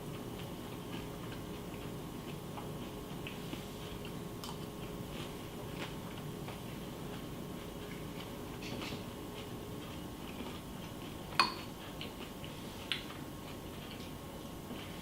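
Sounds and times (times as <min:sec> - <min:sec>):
spoon clinking against bowl: 0:11.4 - 0:11.7.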